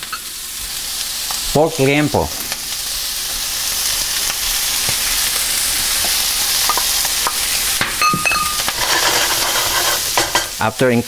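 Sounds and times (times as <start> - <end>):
pork sizzling in a skillet: 0.0 - 11.0
wooden spoon scraping a pan: 8.3 - 10.6.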